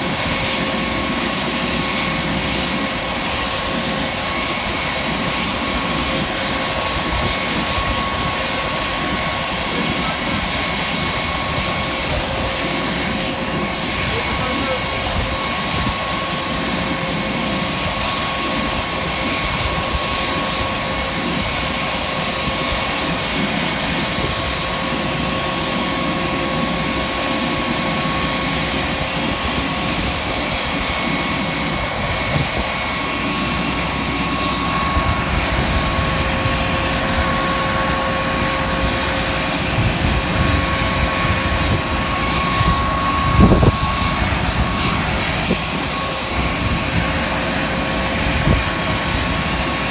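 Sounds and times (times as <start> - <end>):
jet engine whine and rumble: 0.0 - 49.9
wind buffeting microphone: 28.9 - 49.9.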